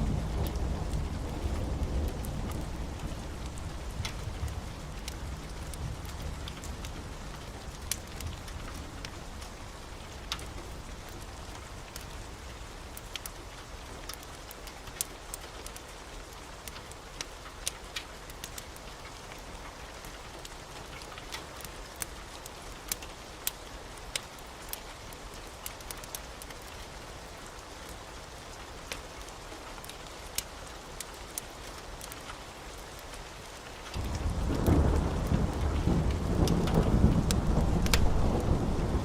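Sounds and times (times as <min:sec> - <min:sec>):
low rumble of thunder: 0:00.0 - 0:11.6, 0:34.0 - 0:39.0
steady rain: 0:00.0 - 0:39.0.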